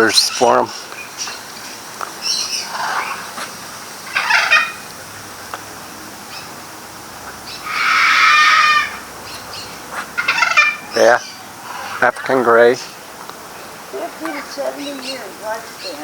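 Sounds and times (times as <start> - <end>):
parrot squawks: 2.2 - 4.9, 7.3 - 12.2.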